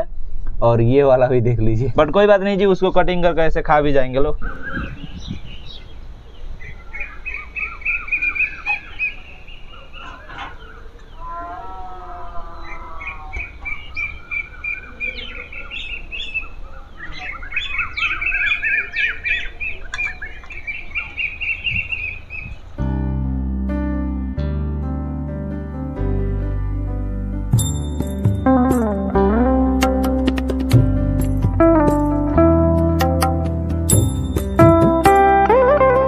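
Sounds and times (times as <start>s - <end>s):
birds chirping: 4.4s - 22.8s
low wavering bird call: 6.6s - 22.8s.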